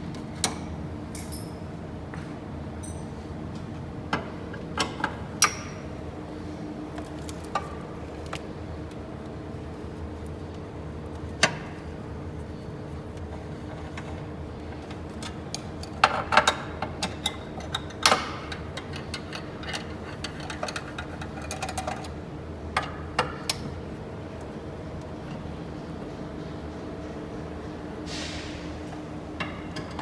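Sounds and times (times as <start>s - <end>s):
steady background hum: 0.0s - 30.0s
metal tools clinking on engine parts: 1.1s - 1.7s, 2.8s - 3.2s.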